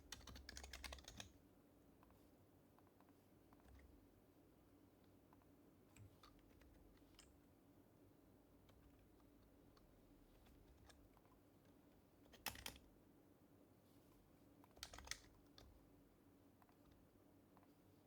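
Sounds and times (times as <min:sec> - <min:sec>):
keyboard typing: 0:00.0 - 0:01.3, 0:12.3 - 0:12.8, 0:14.8 - 0:15.7.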